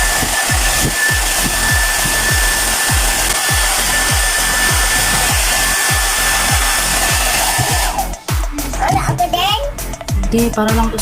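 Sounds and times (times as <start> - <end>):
hair dryer blowing with whine: 0.0 - 8.4
low thumping: 0.0 - 11.0.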